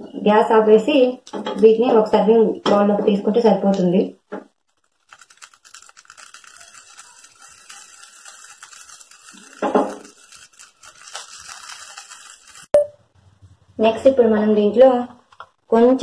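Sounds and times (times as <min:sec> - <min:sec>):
corn kernels crackling in hot fat: 0:03.6 - 0:12.8
wooden spatula stirring: 0:04.6 - 0:12.7.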